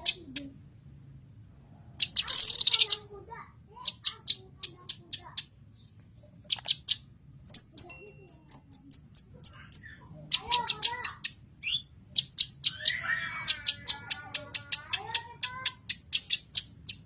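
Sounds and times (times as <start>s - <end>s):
bird singing high chirps: 6.5s - 17.0s.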